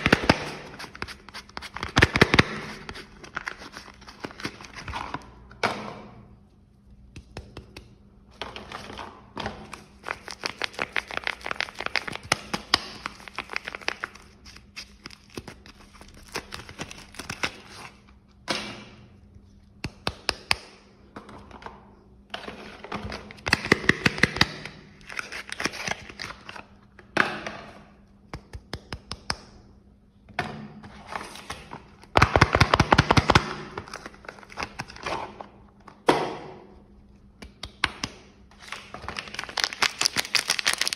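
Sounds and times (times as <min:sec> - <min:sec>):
wrappers crinkling and tearing: 0:10.0 - 0:18.1, 0:38.6 - 0:40.9.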